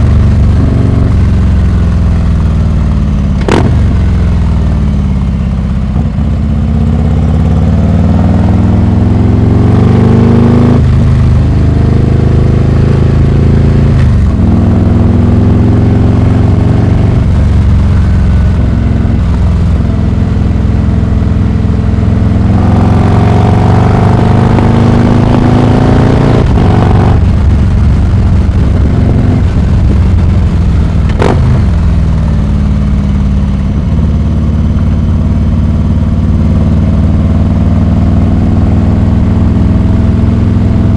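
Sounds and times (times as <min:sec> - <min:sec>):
motorcycle accelerating through gears: 0:00.0 - 0:40.9.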